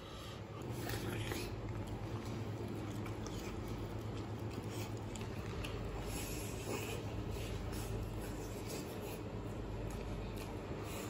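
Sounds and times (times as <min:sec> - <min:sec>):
chewing and gnawing on a bone: 0:00.0 - 0:11.0
steady low hum: 0:00.0 - 0:11.0.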